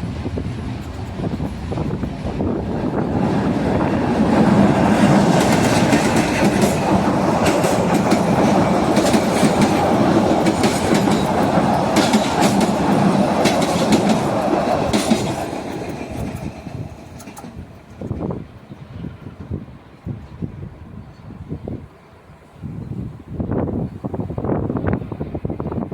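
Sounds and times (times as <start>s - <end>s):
train wheels clacking on rails: 0.0s - 18.6s
train rumble: 0.0s - 25.9s.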